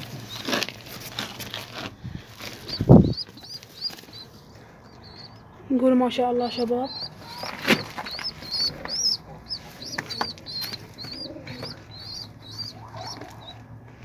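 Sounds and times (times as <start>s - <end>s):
bird chirping high peeps: 2.6s - 13.7s.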